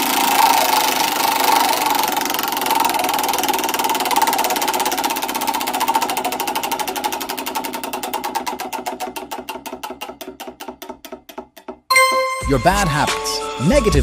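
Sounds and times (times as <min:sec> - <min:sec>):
mechanical clicks slowing: 0:00.0 - 0:10.3.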